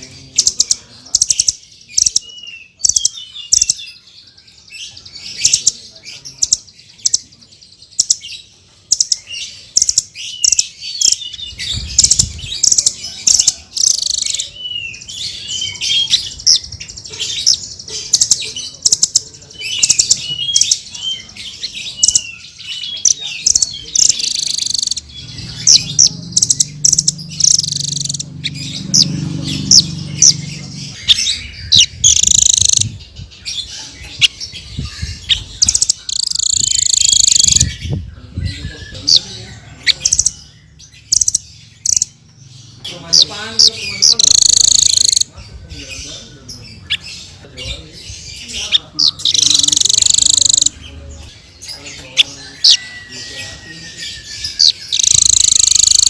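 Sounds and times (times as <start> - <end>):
parrot chirping: 0.0 - 4.0, 8.0 - 37.9, 39.9 - 45.4, 48.2 - 50.9, 51.6 - 56.0.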